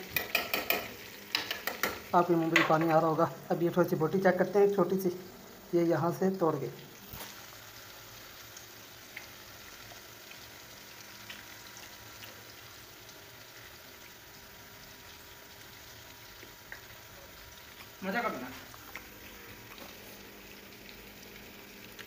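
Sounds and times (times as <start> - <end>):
chicken sizzling in fat: 0.0 - 22.0.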